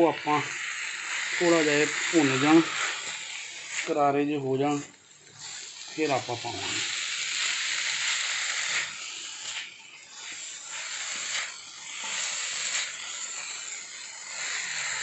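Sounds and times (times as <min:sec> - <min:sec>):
kebabs sizzling on a griddle: 0:00.0 - 0:15.0.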